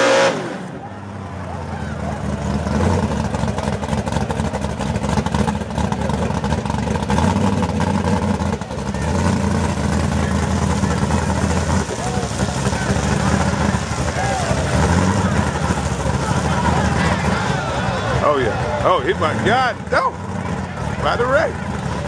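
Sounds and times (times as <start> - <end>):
race car engines rumbling: 0.0 - 22.0.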